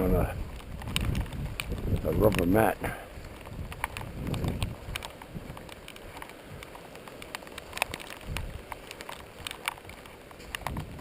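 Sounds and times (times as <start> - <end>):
gusts of wind: 0.0 - 11.0
rain falling: 0.0 - 11.0
raindrops ticking on surfaces: 0.0 - 11.0.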